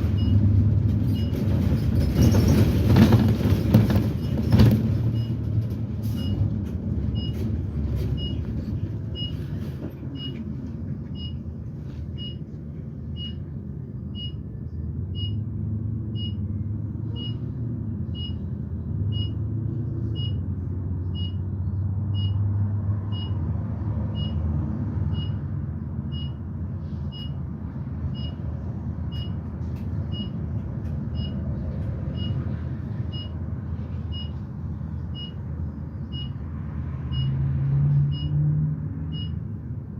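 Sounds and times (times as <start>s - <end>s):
bus engine: 0.0s - 39.9s
road rumble: 0.0s - 39.9s
turn signal ticking with beep: 13.2s - 13.4s, 14.2s - 14.4s, 15.1s - 15.5s, 16.1s - 16.4s, 17.2s - 17.4s, 18.1s - 18.5s, 19.1s - 19.5s, 20.1s - 20.5s, 21.1s - 21.4s, 22.1s - 22.4s, 23.1s - 23.4s, 24.1s - 24.5s, 25.1s - 25.4s, 26.1s - 26.5s, 27.1s - 27.4s, 29.1s - 29.4s, 30.1s - 30.4s, 31.1s - 31.4s, 33.1s - 33.4s, 34.1s - 34.4s, 35.1s - 35.4s, 36.1s - 36.4s, 37.1s - 37.4s, 38.1s - 38.4s, 39.1s - 39.5s.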